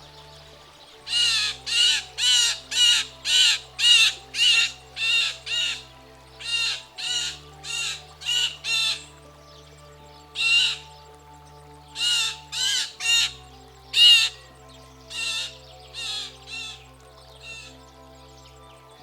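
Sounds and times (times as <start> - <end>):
blue jay harsh rasping calls: 1.1 - 9.2, 10.4 - 10.9, 12.0 - 14.5, 15.1 - 17.7.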